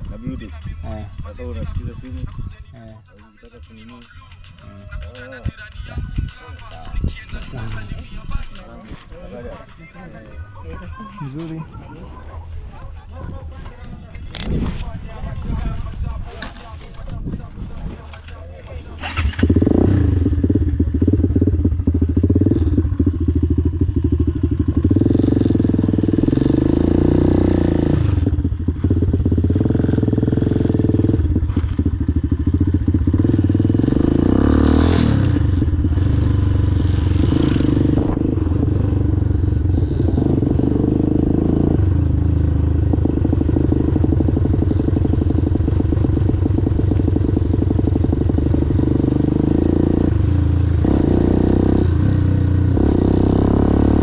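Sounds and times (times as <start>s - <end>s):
motorcycle engine revving: 18.8s - 54.0s.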